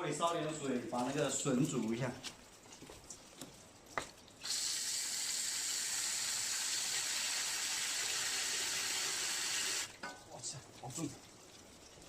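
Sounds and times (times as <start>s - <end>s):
tap water filling a pot: 4.4s - 10.2s.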